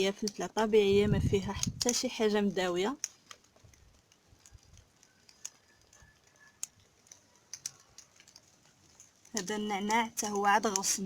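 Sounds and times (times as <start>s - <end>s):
faint sharp clicks: 3.0s - 11.0s.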